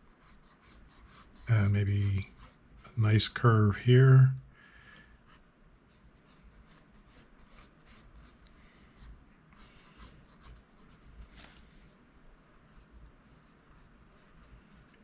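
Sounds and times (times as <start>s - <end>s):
pencil scratching on paper: 0.1s - 3.0s, 5.2s - 8.4s, 9.0s - 11.3s, 12.4s - 15.0s.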